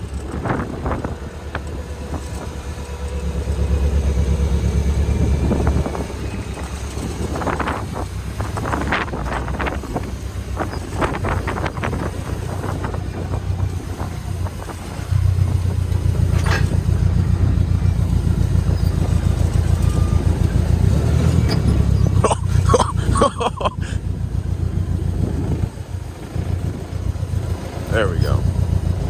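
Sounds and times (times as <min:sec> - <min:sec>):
forklift engine running: 0:00.0 - 0:29.0
clanks and knocks: 0:15.7 - 0:17.8.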